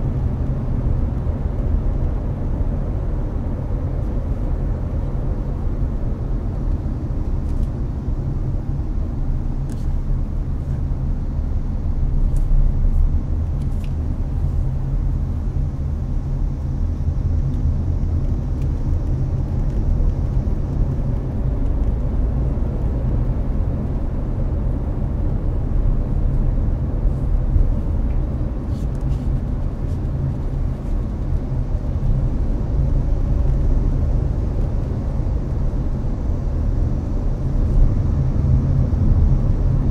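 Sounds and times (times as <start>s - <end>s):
air conditioner fan noise: 0.0s - 39.9s
road and tyre rumble: 0.0s - 39.9s.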